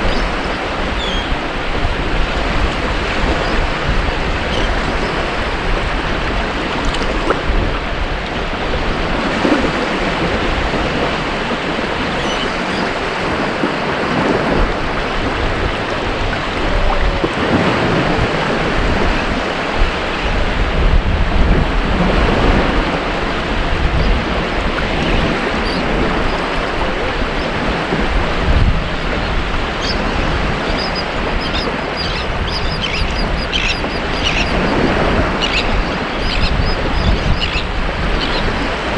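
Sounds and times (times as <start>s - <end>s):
ocean waves breaking on beach: 0.0s - 38.9s
short high bird calls: 30.8s - 34.8s.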